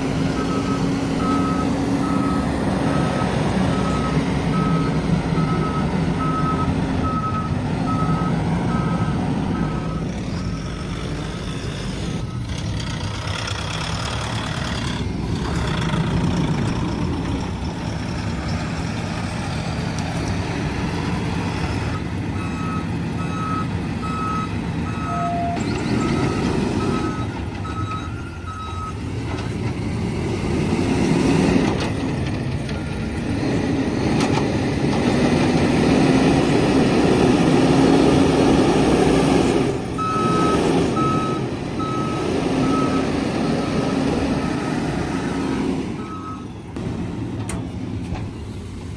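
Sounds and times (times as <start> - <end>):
reversing alarm beeping: 0.0 - 10.8, 21.9 - 29.0, 40.0 - 46.6
heavy diesel machine running: 0.0 - 48.9.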